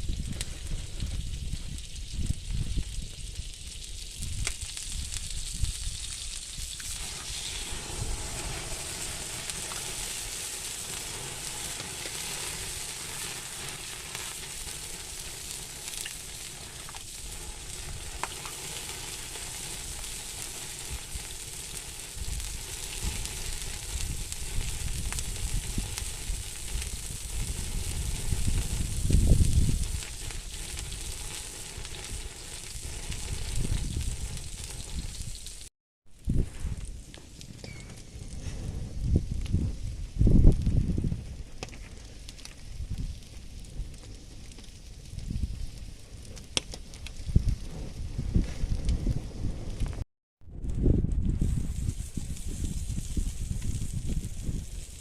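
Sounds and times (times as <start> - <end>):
eggs sizzling: 4.3 - 35.7
low rumbling: 6.8 - 12.8.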